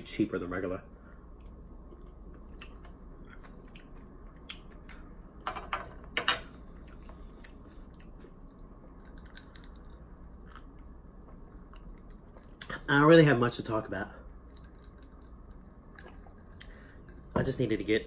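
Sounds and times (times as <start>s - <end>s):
man chewing close to microphone: 1.3s - 5.2s, 6.7s - 12.8s, 14.2s - 17.3s.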